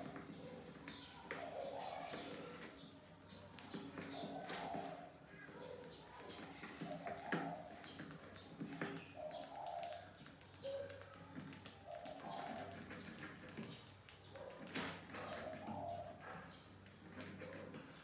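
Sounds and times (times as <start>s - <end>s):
bird calls: 0.0s - 18.0s.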